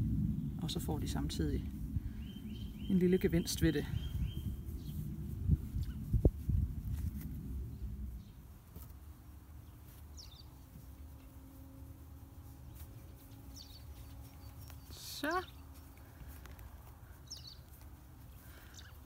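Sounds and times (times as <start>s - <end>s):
low rumble: 0.0s - 9.8s
faint bird chirps: 2.1s - 5.0s, 18.4s - 19.0s.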